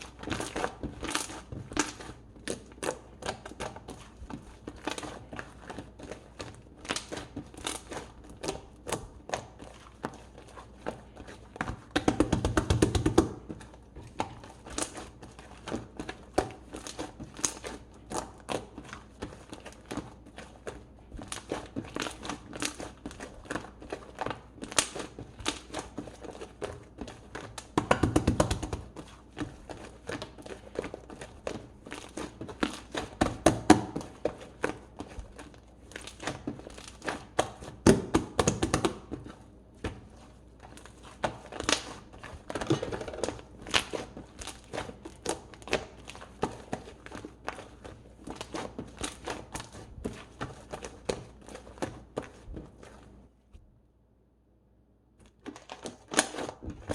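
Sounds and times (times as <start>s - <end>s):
slime squished by hand: 0.0s - 53.2s, 55.2s - 56.9s.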